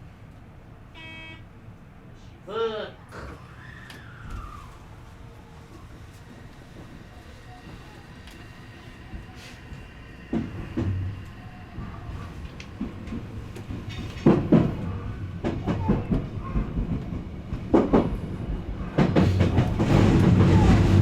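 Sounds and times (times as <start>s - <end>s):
train rumbling on rails: 3.0s - 21.0s
train wheels clacking on joints: 6.2s - 21.0s.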